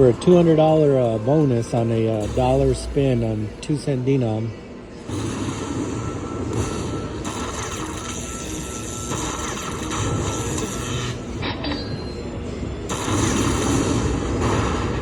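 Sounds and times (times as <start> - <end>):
noisy background din: 0.0 - 15.0
slot machine spin sounds: 5.2 - 11.4.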